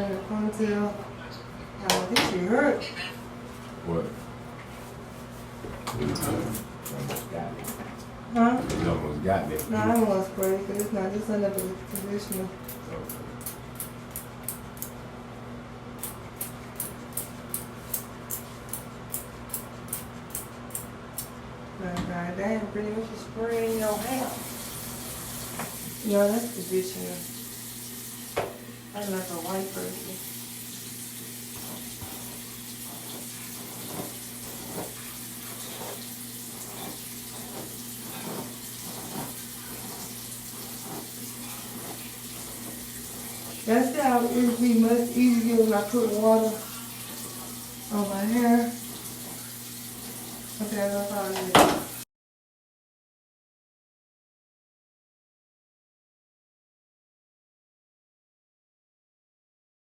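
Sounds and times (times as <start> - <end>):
low electrical hum: 0.0 - 52.0
water running: 23.5 - 52.0.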